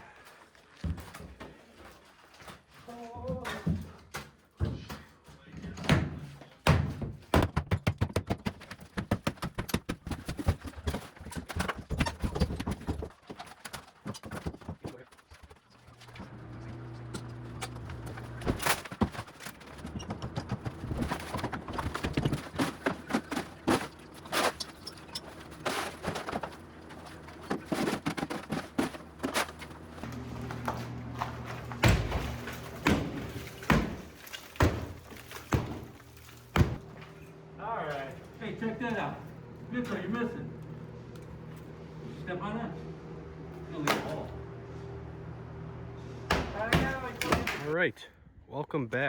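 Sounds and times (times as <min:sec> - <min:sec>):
demolition knocks and thuds: 0:02.9 - 0:37.2, 0:46.3 - 0:47.8.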